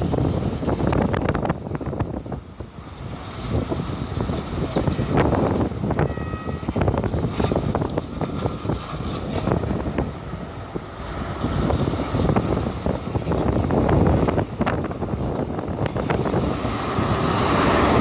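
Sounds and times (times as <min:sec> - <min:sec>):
wind buffeting microphone: 0:00.0 - 0:18.0
brief high tone: 0:06.0 - 0:06.7
train wheels clattering over joints: 0:06.7 - 0:16.4.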